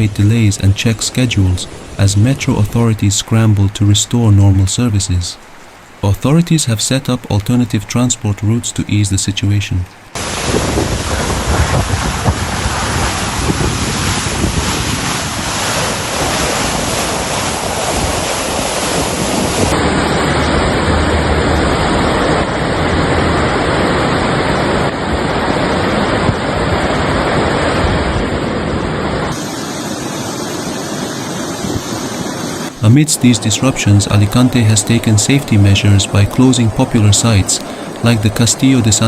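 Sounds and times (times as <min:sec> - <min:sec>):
water rushing: 0:00.0 - 0:39.0
wind buffeting microphone: 0:10.1 - 0:39.0.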